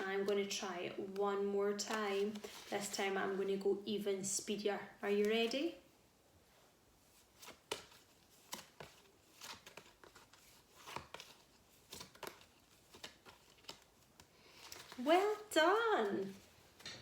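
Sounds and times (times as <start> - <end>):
flashcards flicking and tapping: 0.0 - 3.2, 7.2 - 17.0.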